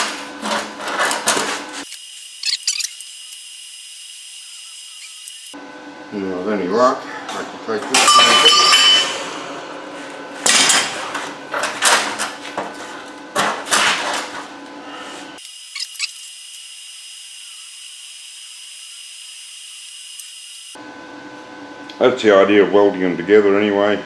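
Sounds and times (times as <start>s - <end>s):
high-pitched hum: 4.1s - 11.0s
metal tools clanking on steel: 7.9s - 9.4s.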